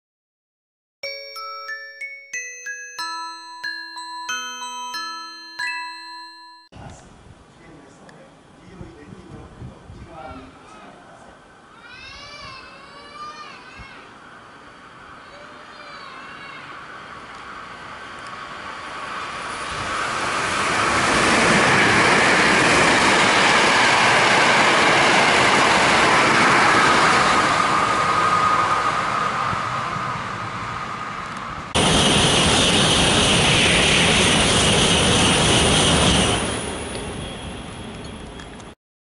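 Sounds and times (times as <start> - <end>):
electric train passing at speed: 1.1 - 6.5, 13.3 - 38.8
bullet train rushing past: 16.4 - 38.7.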